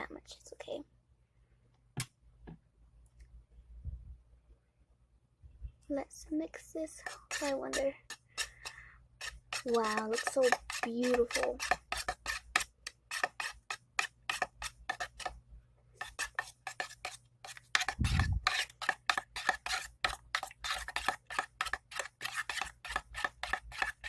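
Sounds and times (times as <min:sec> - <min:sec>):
spoon scraping a bowl: 0:07.0 - 0:15.4, 0:16.0 - 0:24.0.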